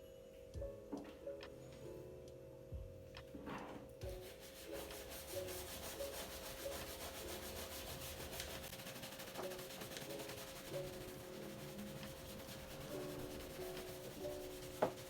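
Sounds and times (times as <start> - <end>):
soft plucked background music: 0.0 - 15.0
scrubbing on refrigerator: 4.0 - 15.0.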